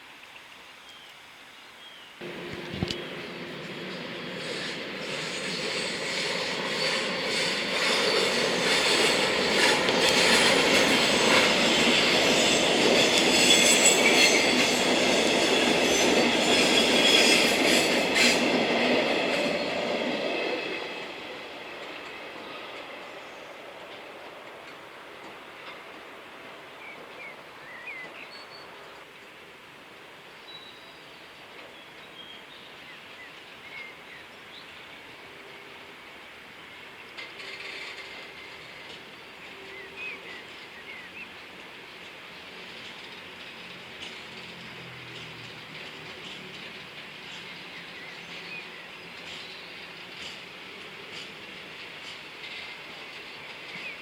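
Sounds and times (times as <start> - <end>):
clicks of train wheels: 2.2 - 27.2, 36.8 - 54.0
train passing: 2.2 - 54.0
train wheels squealing: 3.0 - 24.2, 37.2 - 54.0.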